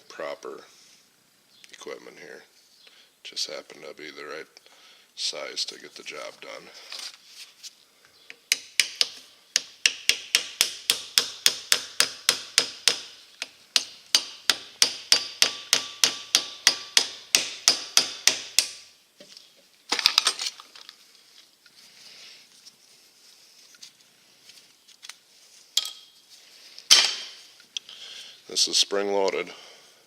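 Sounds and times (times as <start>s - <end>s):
hammer striking metal punch: 8.5s - 13.2s, 13.8s - 18.8s.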